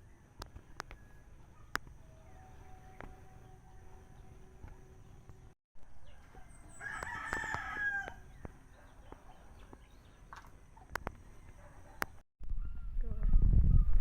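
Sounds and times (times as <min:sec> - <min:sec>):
rooster crowing: 0:06.0 - 0:08.4.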